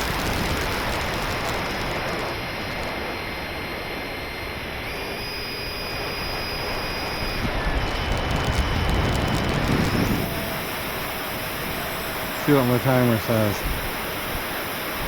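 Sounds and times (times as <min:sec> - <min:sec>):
rain hiss: 0:00.0 - 0:03.1, 0:08.4 - 0:15.0
rc jet whine: 0:00.0 - 0:15.0.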